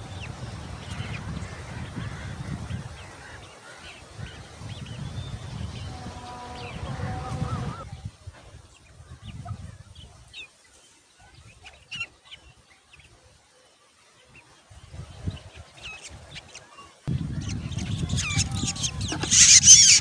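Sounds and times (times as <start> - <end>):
bird chirps and squeaks: 17.5 - 20.0.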